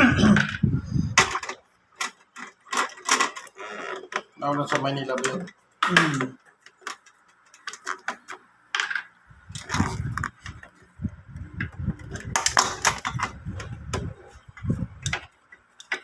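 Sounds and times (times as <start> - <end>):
hand tools clicking and knocking: 1.2 - 9.0, 11.6 - 16.0
low rumbling handling noise: 9.3 - 15.5.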